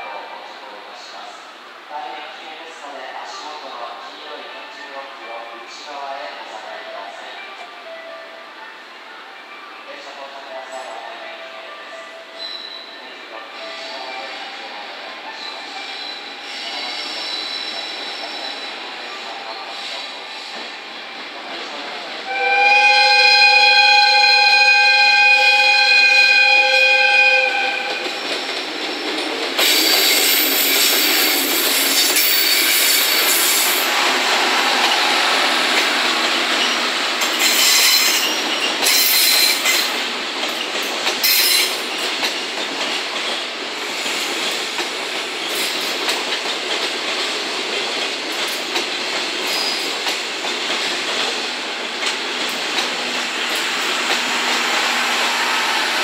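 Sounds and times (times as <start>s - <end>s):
locomotive air horn: 22.3s - 28.0s
train wheels clattering on rails: 27.7s - 56.0s.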